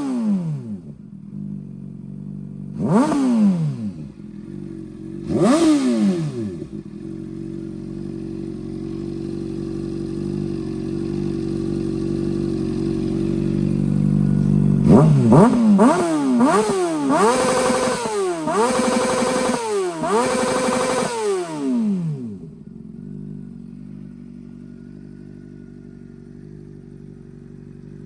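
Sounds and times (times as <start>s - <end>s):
motorcycle engine idling and revving: 0.0s - 28.0s.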